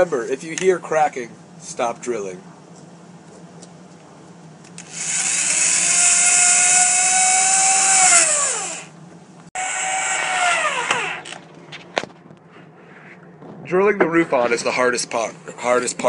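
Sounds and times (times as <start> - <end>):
power drill drilling into wood: 4.8 - 8.9, 9.6 - 11.4.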